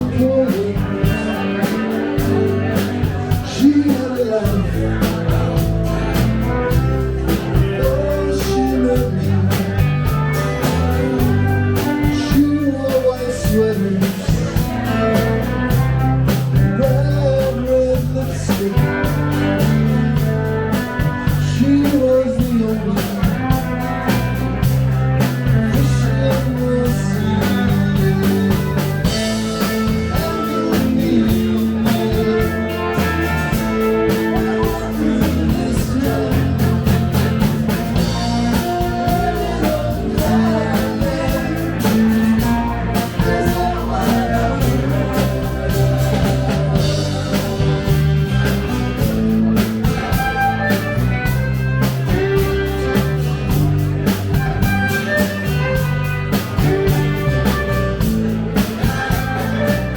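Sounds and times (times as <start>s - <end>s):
bass guitar: 0.0s - 59.9s
drum kit beat: 0.0s - 59.9s
electric guitar: 0.0s - 59.9s.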